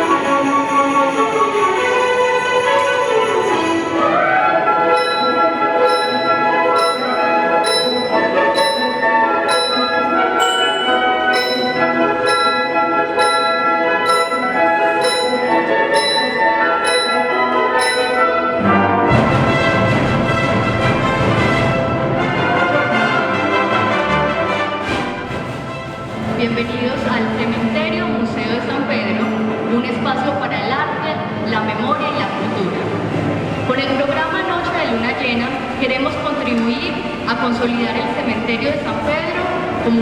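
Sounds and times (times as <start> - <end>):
bell-like percussion stroke: 0.0 - 19.7
orchestra with brass playing: 0.0 - 29.8.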